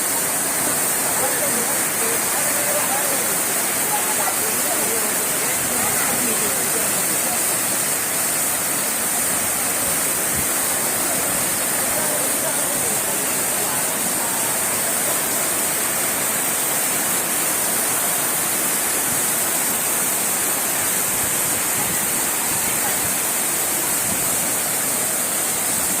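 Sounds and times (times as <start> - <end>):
rushing water hiss: 0.0 - 26.0.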